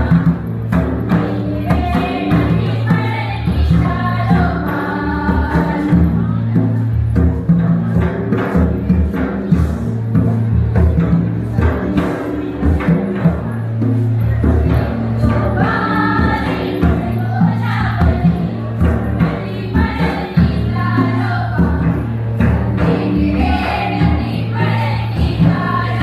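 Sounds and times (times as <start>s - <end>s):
group singing: 0.0s - 6.8s, 14.4s - 26.0s.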